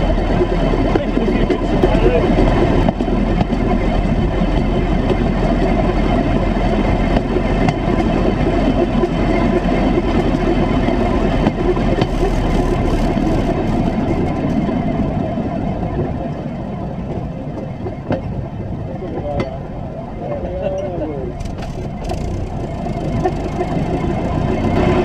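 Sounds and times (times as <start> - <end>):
vehicle engine running steadily: 0.0 - 25.0.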